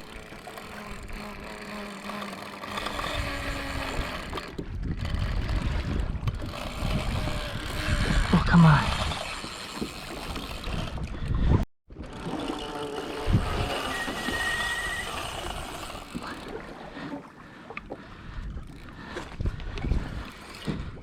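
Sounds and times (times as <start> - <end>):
water noise: 0.0 - 21.0
wind: 0.0 - 21.0
wavering high whine: 13.4 - 16.0.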